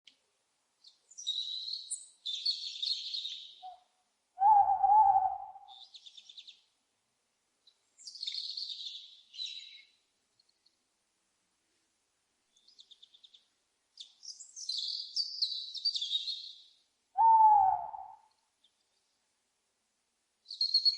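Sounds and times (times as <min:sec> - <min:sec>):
owl hooting: 0:04.4 - 0:05.9, 0:17.2 - 0:18.3
owls screeching: 0:17.2 - 0:18.2.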